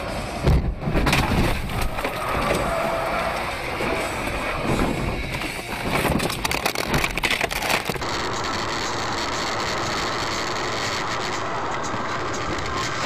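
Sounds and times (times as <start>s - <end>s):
vehicle driving noise: 0.0s - 13.0s
rapid clicks and knocks: 4.7s - 13.0s.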